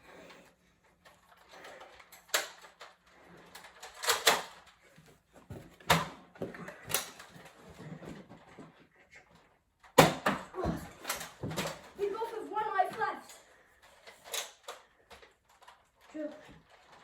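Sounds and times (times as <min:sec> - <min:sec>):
sharp plastic clacks: 0:01.1 - 0:04.8, 0:05.8 - 0:07.6, 0:09.8 - 0:17.0.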